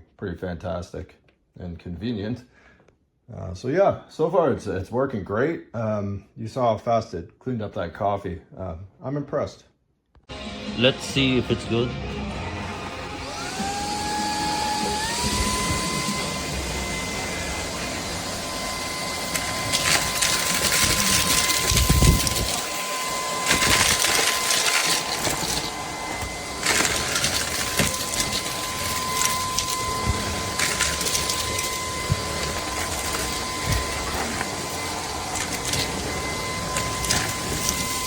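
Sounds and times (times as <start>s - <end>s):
vacuum cleaner whining: 10.3s - 38.0s
debris rattling in vacuum: 13.3s - 38.0s.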